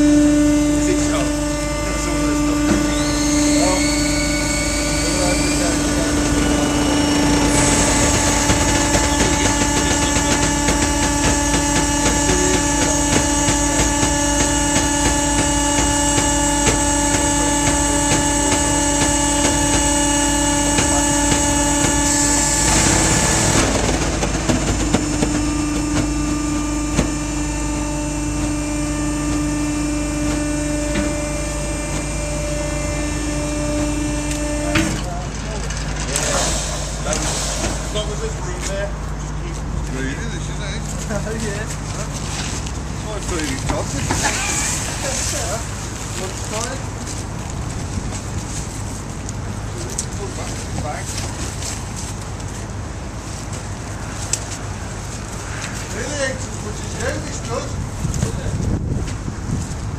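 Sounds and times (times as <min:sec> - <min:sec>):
hydraulic power pack humming: 0:00.0 - 0:59.9
short rushing noise: 0:35.5 - 0:39.0.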